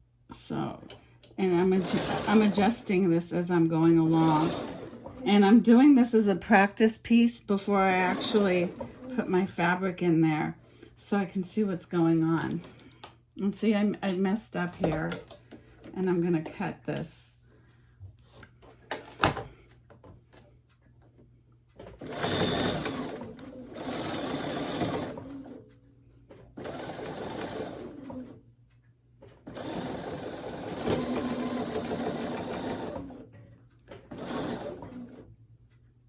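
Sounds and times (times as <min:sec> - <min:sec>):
sewing machine stitching: 0:00.8 - 0:03.1, 0:03.8 - 0:05.6, 0:07.9 - 0:09.3, 0:21.8 - 0:25.7, 0:26.6 - 0:28.4, 0:29.4 - 0:33.3, 0:33.9 - 0:35.3.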